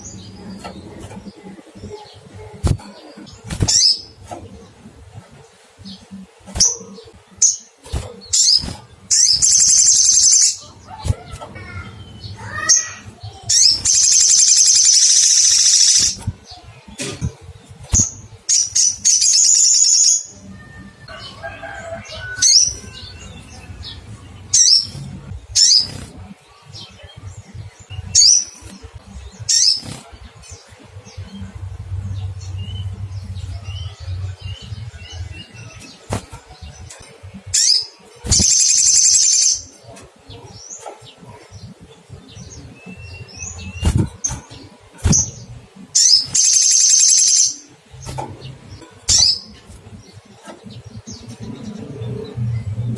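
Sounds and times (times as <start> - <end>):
sunbird high chirps: 7.6 - 16.3, 37.6 - 39.8, 46.0 - 48.0.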